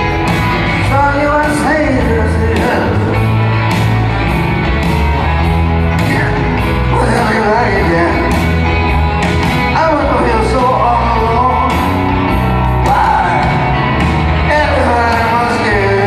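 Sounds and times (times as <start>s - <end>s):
live rock band playing: 0.0s - 16.0s
man singing: 0.8s - 3.4s, 6.0s - 8.6s, 9.6s - 16.0s.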